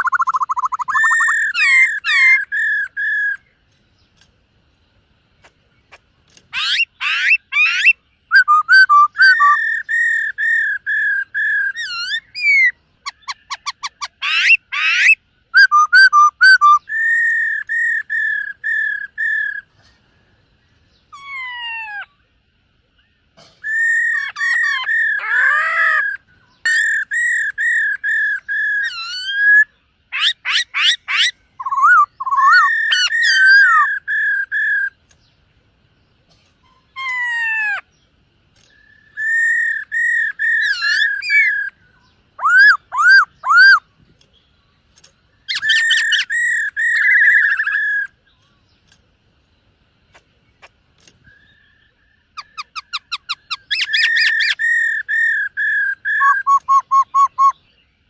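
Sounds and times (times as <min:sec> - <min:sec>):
bird singing whistled phrases: 0:00.0 - 0:03.5, 0:06.5 - 0:19.7, 0:23.6 - 0:35.0, 0:38.6 - 0:43.9, 0:45.4 - 0:48.2, 0:51.2 - 0:57.8.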